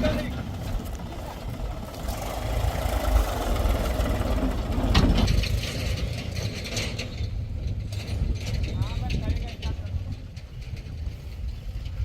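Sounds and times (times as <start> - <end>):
diesel engine running: 0.0 - 8.1
engine clatter: 0.0 - 12.0.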